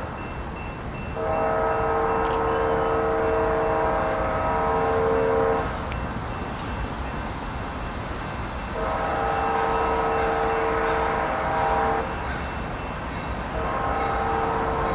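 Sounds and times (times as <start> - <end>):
train rumbling: 0.0 - 14.9
locomotive air horn blast: 1.2 - 5.9, 8.7 - 12.1, 13.6 - 14.9.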